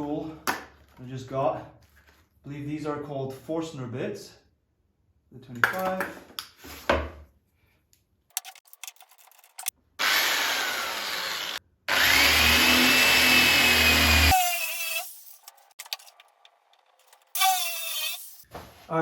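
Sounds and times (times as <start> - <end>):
power drill boring into wood: 10.0 - 15.4, 17.3 - 18.4.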